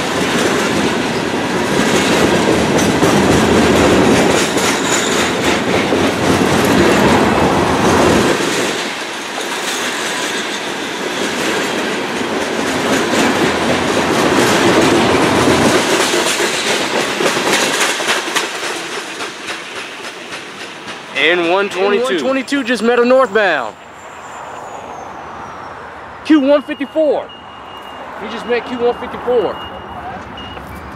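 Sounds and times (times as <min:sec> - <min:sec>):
freight train wheels clicking on rails: 0:00.0 - 0:23.5.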